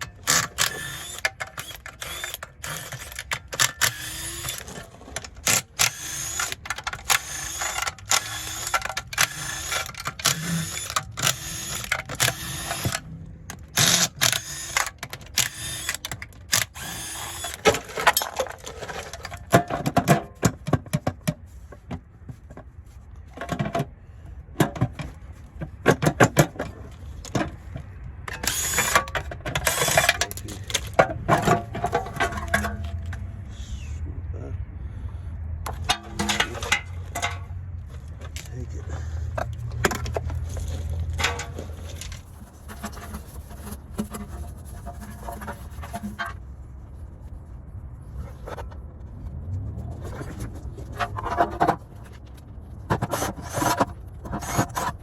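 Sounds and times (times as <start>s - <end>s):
metal knocks and clanks: 35.7s - 37.7s.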